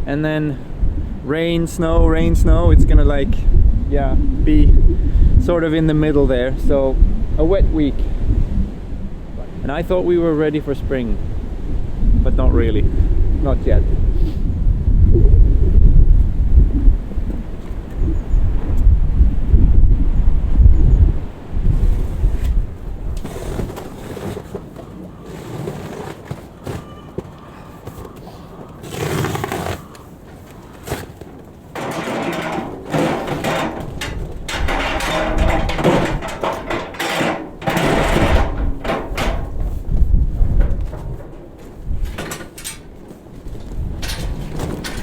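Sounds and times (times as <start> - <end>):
wind on microphone: 0.0 - 24.0, 31.8 - 45.0
hay rustling and tearing: 28.8 - 30.0.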